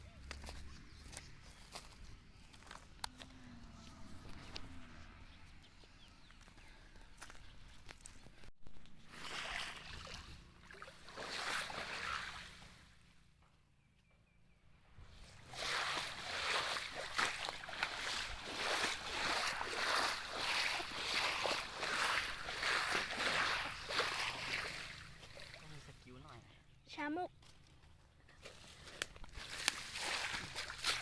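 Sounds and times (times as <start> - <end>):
rhythmic swishing crunching strokes: 15.5 - 25.4.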